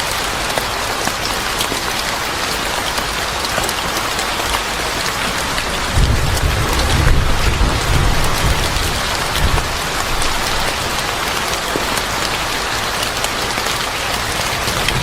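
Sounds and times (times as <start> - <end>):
steady rain falling: 0.0 - 15.0
low rumble of thunder: 5.6 - 11.1.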